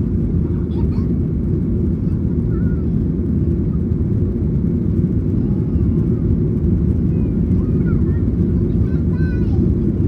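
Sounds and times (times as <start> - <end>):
jet engines roaring: 0.0 - 10.0.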